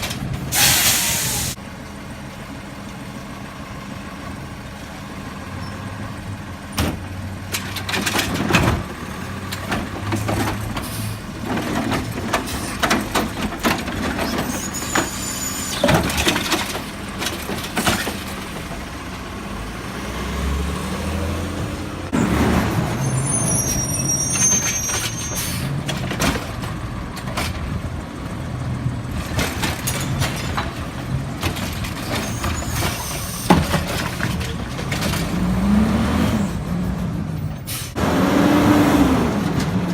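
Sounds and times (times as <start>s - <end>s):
diesel engine running: 0.0s - 39.9s
metal clanks and knocks: 9.5s - 15.1s, 29.2s - 35.4s
high squeal: 14.2s - 16.0s, 22.9s - 25.7s.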